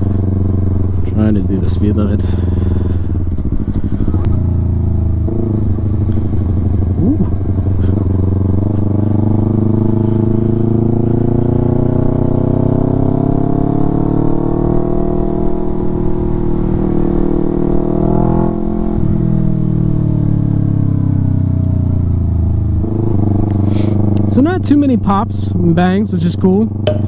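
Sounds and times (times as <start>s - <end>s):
motorcycle engine: 0.0s - 27.0s
exhaust pops and bangs: 26.7s - 27.0s.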